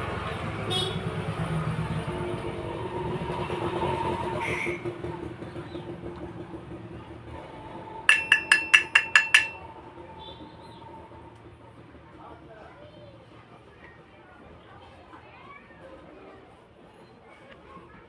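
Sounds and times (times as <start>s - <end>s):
ringing metallic taps: 8.1s - 9.7s.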